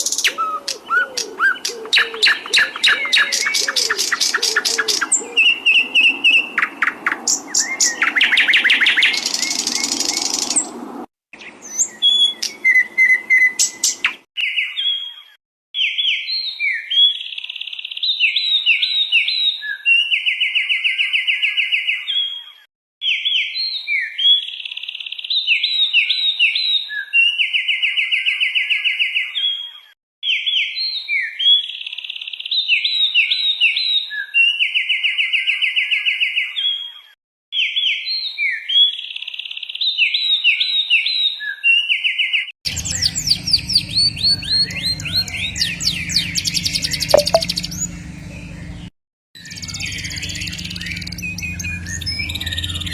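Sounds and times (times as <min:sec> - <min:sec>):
songbird singing rapid song: 0:00.0 - 0:10.8, 0:11.4 - 0:15.2, 0:42.7 - 0:52.9.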